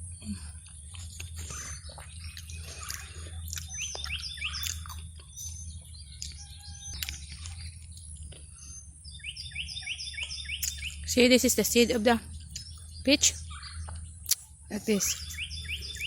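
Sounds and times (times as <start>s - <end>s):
songbird chirping: 0.0s - 16.0s
wet chewing and biting: 0.5s - 8.7s, 10.4s - 10.9s, 12.4s - 14.6s.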